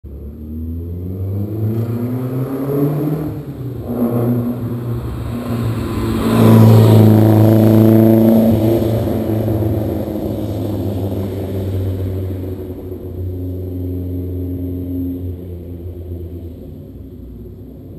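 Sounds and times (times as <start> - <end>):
car engine idling and revving: 0.0 - 17.9.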